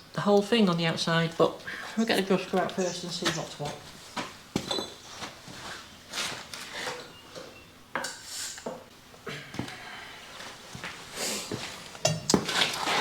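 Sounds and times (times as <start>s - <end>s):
metal tools clinking and knocking: 4.6s - 5.1s.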